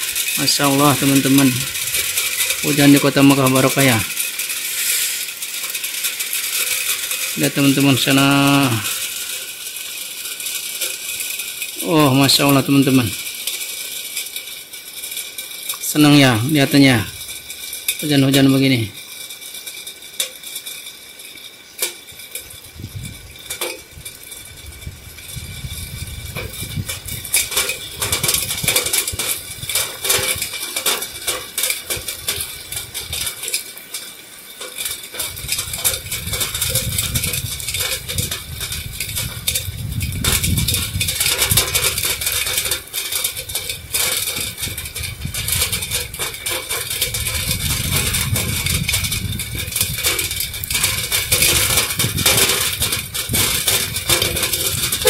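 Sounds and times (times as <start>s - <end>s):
heavy rain on pavement: 0.0s - 55.0s.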